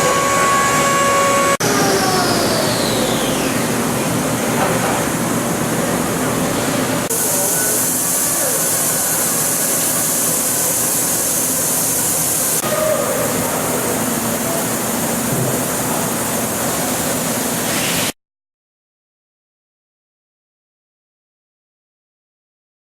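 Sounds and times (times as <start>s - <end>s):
milling machine running: 0.0s - 18.1s
loud high coolant spray hiss: 7.1s - 18.2s.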